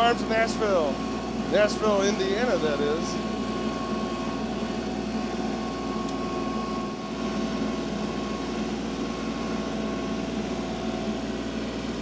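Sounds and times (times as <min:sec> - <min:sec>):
engine humming steadily: 0:00.0 - 0:12.0.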